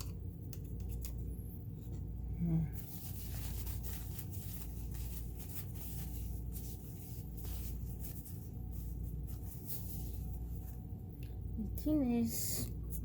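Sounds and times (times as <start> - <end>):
steady low hum: 0.0 - 13.0
rubbing and wiping strokes: 2.8 - 11.0.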